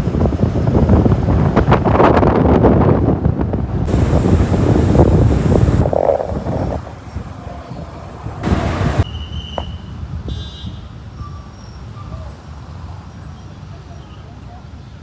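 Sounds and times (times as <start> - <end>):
low traffic rumble: 0.0 - 15.0
vehicle passing whoosh: 3.8 - 9.1.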